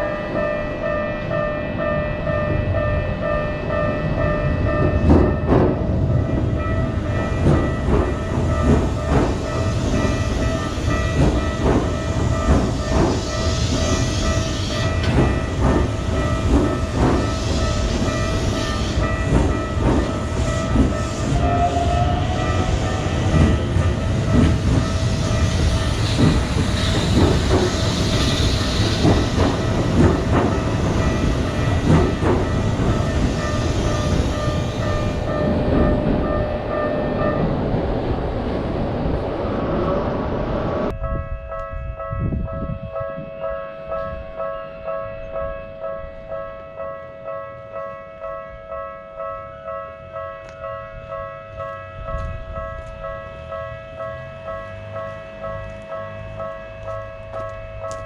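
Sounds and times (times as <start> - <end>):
train wheels clattering over rail joints: 6.9 - 36.8.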